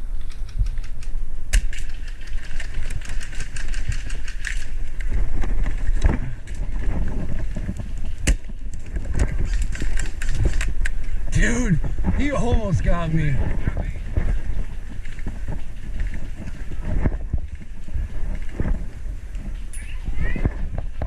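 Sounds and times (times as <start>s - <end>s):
wind rumble: 0.0s - 21.0s
airsoft gunfire clicks and snaps: 0.1s - 5.1s
microphone handling noise: 5.0s - 21.0s.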